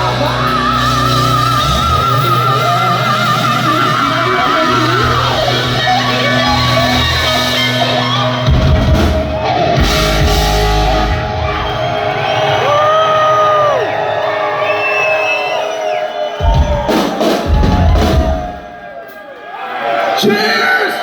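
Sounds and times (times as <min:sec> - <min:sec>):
bass guitar: 0:00.0 - 0:14.7, 0:16.4 - 0:18.5
electric guitar: 0:00.0 - 0:14.8
drums: 0:00.0 - 0:19.3.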